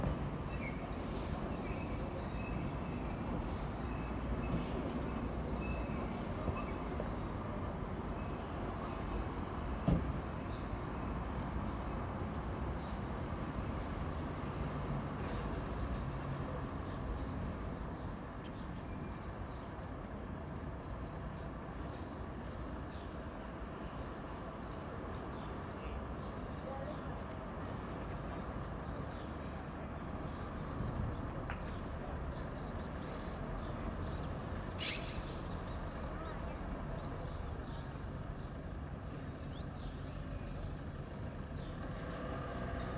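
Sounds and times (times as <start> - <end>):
outdoor traffic noise: 0.0 - 42.9.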